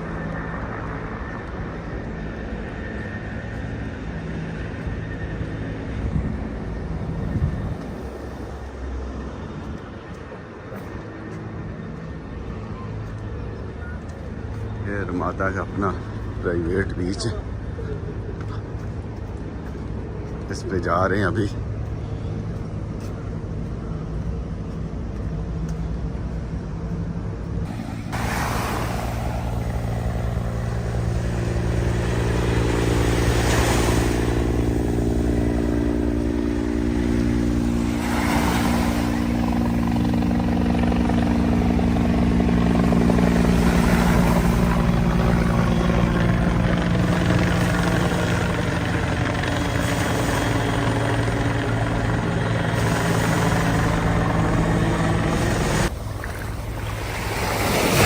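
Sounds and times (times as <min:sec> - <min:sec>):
motor engine running: 0:27.7 - 0:58.0.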